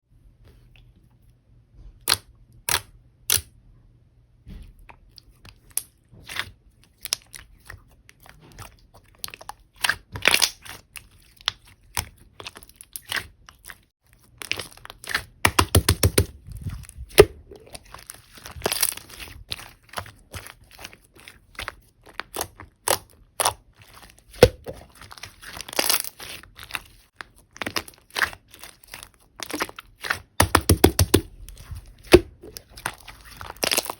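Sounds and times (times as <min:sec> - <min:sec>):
slime popping and crackling: 0:24.2 - 0:33.9.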